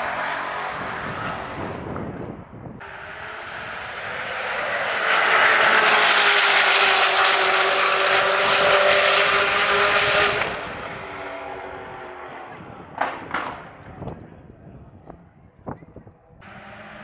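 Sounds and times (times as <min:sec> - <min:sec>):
sports car engine at full throttle: 0:00.0 - 0:14.4, 0:16.2 - 0:17.0.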